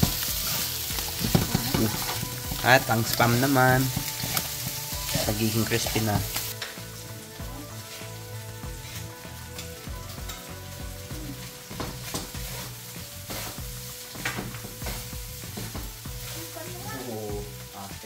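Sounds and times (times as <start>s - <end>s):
meat sizzling in hot oil: 0.0s - 18.0s
wooden spatulas scraping pans: 0.1s - 2.8s, 3.8s - 5.4s, 11.4s - 16.5s.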